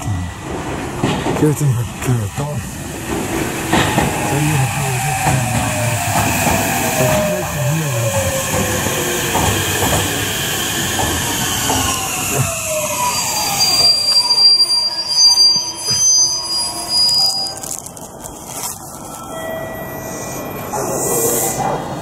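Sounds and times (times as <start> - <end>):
electric train whine: 0.0 - 22.0
wheels clacking over rail joints: 0.4 - 1.8, 3.0 - 12.8
high wheel squeal: 11.4 - 17.9.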